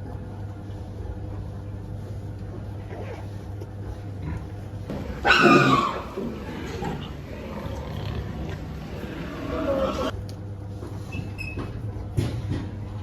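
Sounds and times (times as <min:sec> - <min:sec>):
steady low hum: 0:00.0 - 0:11.1
pig squealing: 0:04.9 - 0:10.1.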